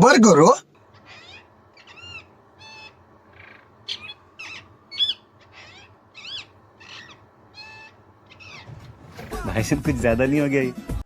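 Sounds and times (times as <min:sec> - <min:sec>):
parrot chattering calls: 0:00.9 - 0:09.5.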